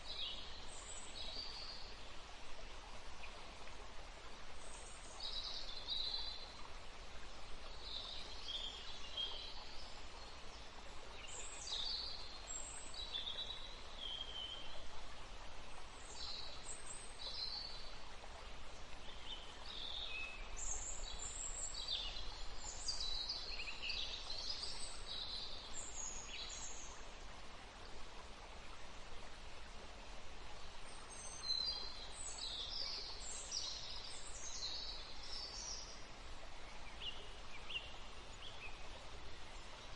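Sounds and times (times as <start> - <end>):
faint outdoor hiss: 0.0 - 39.9
songbirds singing: 30.5 - 39.9.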